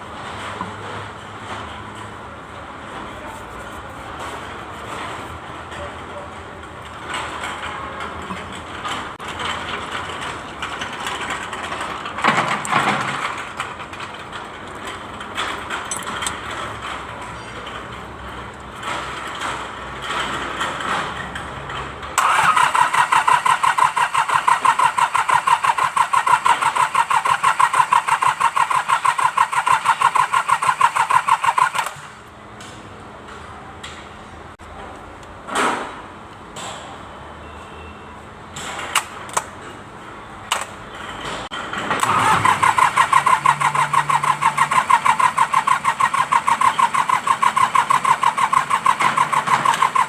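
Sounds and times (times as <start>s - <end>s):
irregular mechanical noise: 0.0s - 50.0s
diesel engine cranking: 4.5s - 32.3s, 38.6s - 50.0s.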